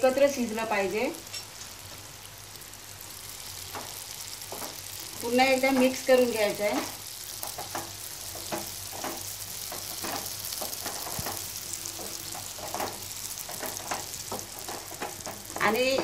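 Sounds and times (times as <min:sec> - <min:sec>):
food sizzling in oil: 0:00.0 - 0:16.0
spatula scraping a pan: 0:07.3 - 0:16.0.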